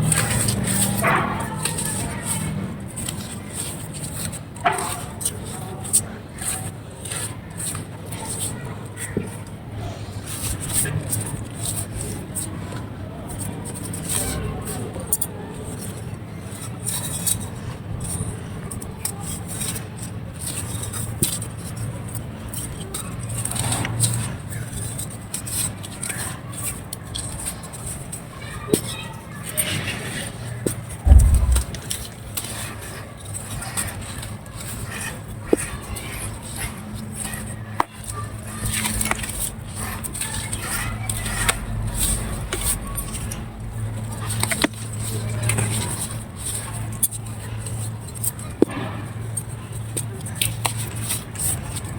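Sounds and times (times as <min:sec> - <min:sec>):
low background rumble: 0:31.0 - 0:32.0
steady low hum: 0:31.0 - 0:32.0
dry clay crackling and crunching: 0:31.0 - 0:48.9.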